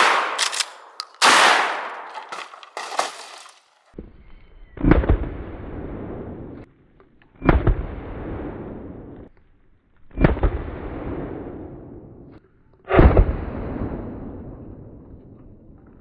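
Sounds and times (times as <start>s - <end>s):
heavy gunshots with echo: 0.0s - 3.4s.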